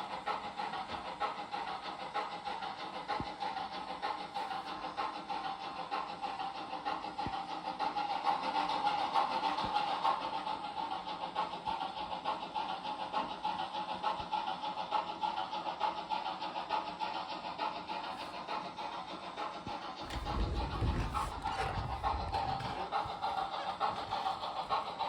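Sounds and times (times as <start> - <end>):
steam engine chuffing from speaker: 0.0 - 25.0
low rumble: 20.1 - 24.3.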